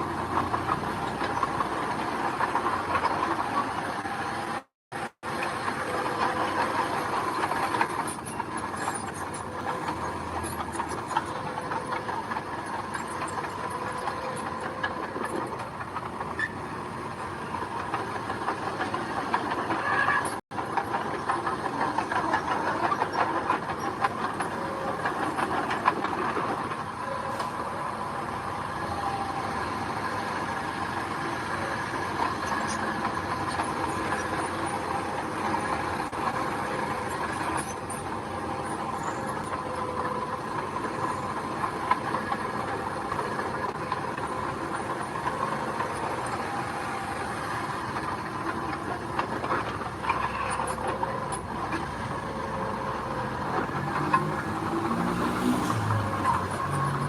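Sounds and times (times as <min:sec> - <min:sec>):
bulldozer engine running: 0:00.0 - 0:57.0
steel tracks clattering: 0:00.0 - 0:57.0.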